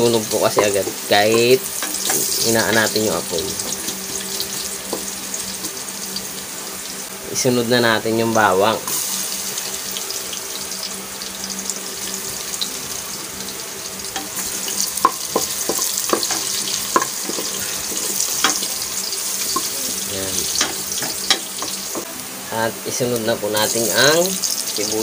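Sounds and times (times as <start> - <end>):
garlic sizzling in hot oil: 0.0 - 25.0
spoon tapping against pot: 15.0 - 17.5.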